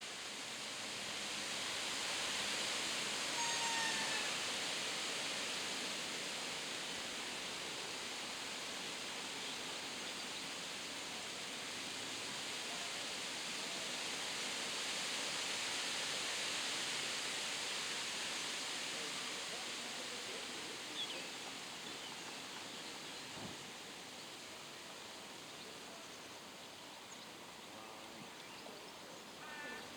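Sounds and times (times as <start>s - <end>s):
faint high falling call: 3.3s - 4.4s.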